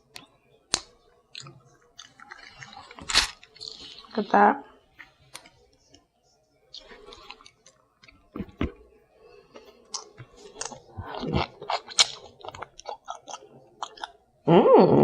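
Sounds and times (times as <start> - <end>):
person chewing and lip-smacking: 0.2 - 4.1, 9.8 - 14.2.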